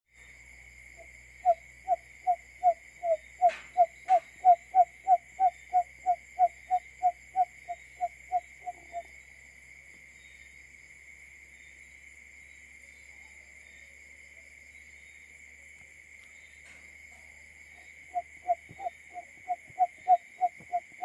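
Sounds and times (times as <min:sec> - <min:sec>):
bird call of low hoots: 0:01.4 - 0:09.1, 0:17.8 - 0:21.0.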